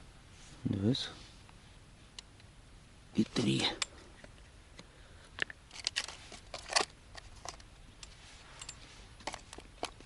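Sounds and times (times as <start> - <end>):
small clicks and rustles: 3.8 - 10.0.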